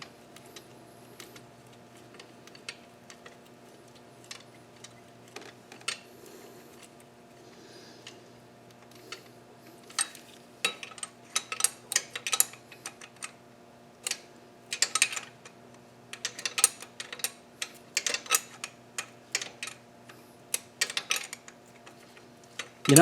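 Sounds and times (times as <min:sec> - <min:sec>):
metal tools clinking and rattling: 0:22.6 - 0:23.0.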